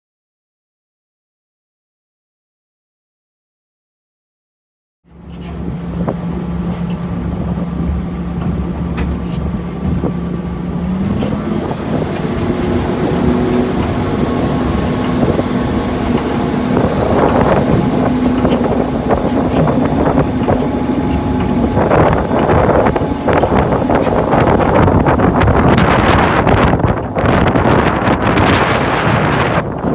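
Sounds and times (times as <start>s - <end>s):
diesel locomotive engine running: 5.1s - 29.9s
rushing noise: 9.5s - 29.8s.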